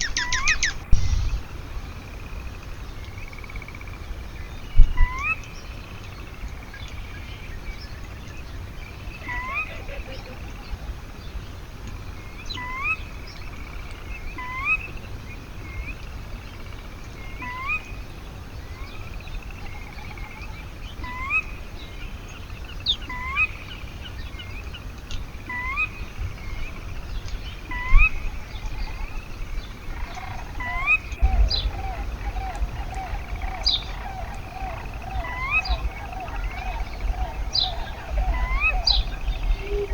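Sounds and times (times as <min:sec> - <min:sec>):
lower fluttering bird call: 0:00.0 - 0:01.8, 0:07.9 - 0:11.1, 0:25.5 - 0:39.9
low outdoor rumble: 0:00.0 - 0:19.7, 0:23.9 - 0:39.9.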